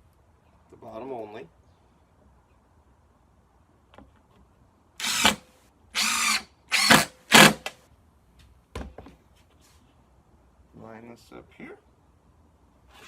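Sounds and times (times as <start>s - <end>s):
impact driver driving screw into wood: 5.0s - 5.4s, 6.0s - 7.8s.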